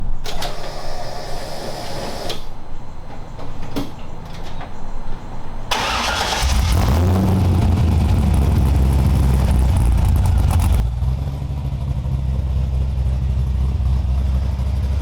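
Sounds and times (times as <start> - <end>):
car engine running strongly: 5.7 - 15.0
low rumble: 6.5 - 15.0.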